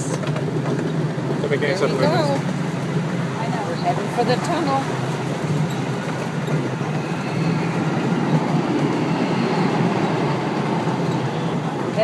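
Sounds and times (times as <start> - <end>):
ride-on train wheels rumbling: 0.0 - 12.0
faint high whine: 5.6 - 11.7.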